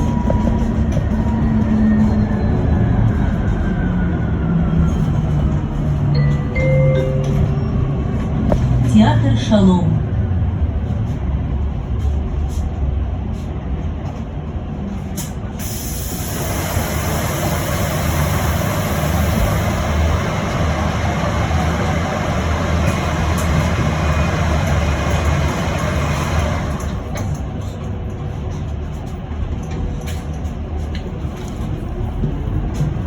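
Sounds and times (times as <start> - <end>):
bus low rumble: 0.0 - 33.0
air hissing: 15.6 - 19.6.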